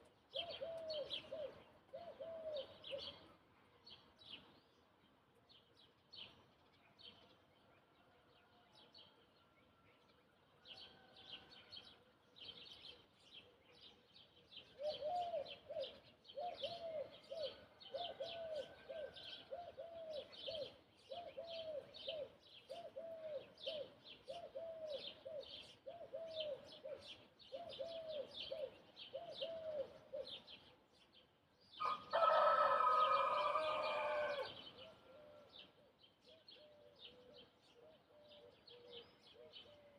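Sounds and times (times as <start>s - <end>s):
small birds chirping: 11.9s - 39.9s
rooster crowing: 31.8s - 34.6s.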